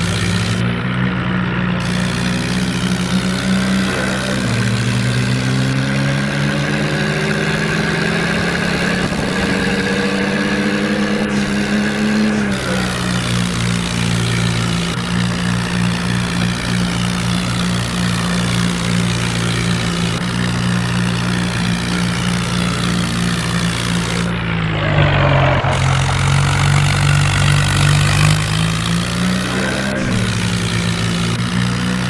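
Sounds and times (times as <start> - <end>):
diesel tractor engine under load: 0.0 - 32.0.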